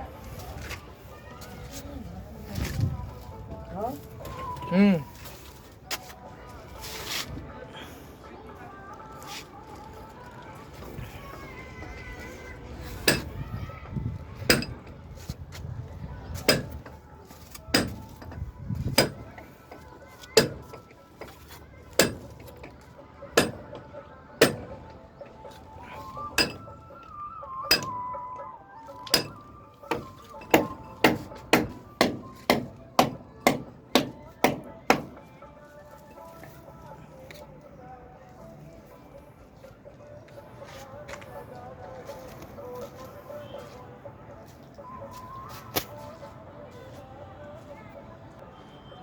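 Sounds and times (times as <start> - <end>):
ringing hammer strikes: 13.1 - 13.4, 14.5 - 14.9, 16.5 - 16.9, 17.8 - 19.4, 22.0 - 22.7, 23.4 - 23.8, 24.4 - 24.9, 26.3 - 26.8, 27.7 - 28.2, 29.0 - 35.2.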